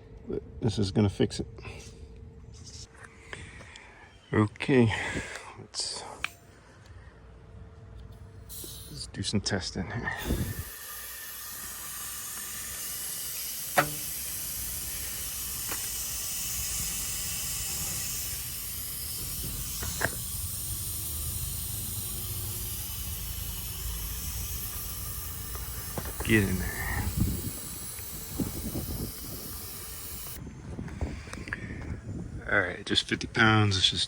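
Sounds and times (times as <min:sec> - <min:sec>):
gas hissing into pipes: 0:08.5 - 0:09.0, 0:10.2 - 0:30.4
sharp click: 0:13.8 - 0:14.1.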